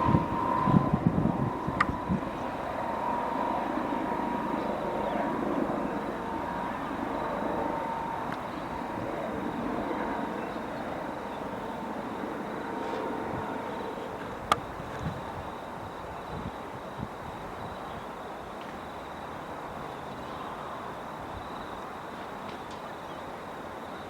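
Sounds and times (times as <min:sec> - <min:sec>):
helicopter rotor noise: 0:00.0 - 0:18.4
helicopter turbine whine: 0:00.0 - 0:24.0.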